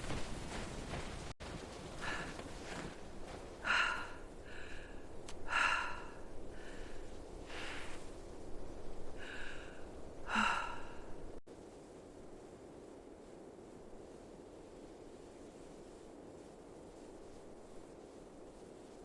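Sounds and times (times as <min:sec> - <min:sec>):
faint steady hiss: 0:00.0 - 0:19.0
heavy laboured breathing: 0:01.8 - 0:11.4.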